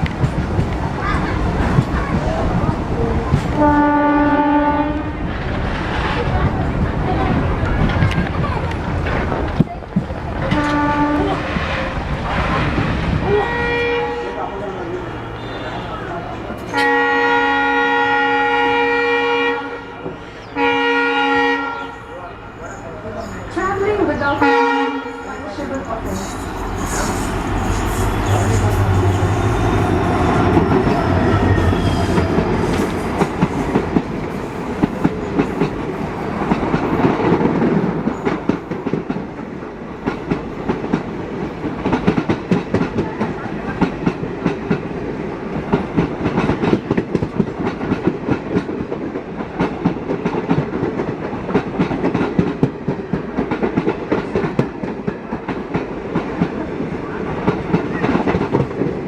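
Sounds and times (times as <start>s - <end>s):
train rumbling on rails: 0.0s - 59.0s
higher tones: 13.2s - 18.8s.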